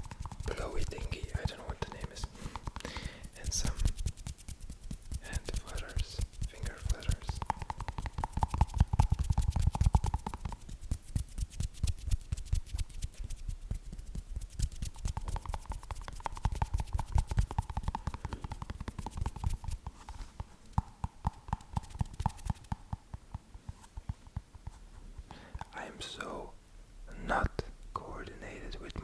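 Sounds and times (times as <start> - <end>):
fingernail tapping: 6.8 - 10.8, 15.0 - 24.8.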